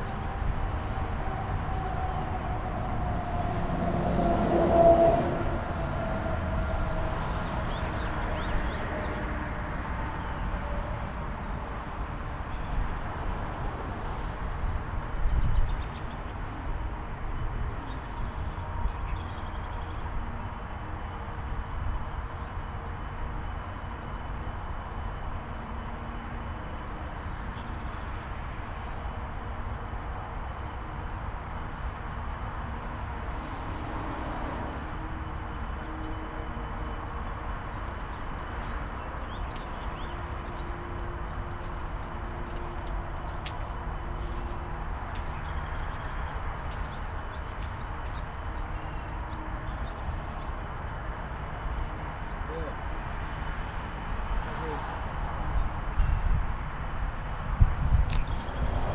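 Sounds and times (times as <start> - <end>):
rumbling vehicle noise: 0.0 - 58.9.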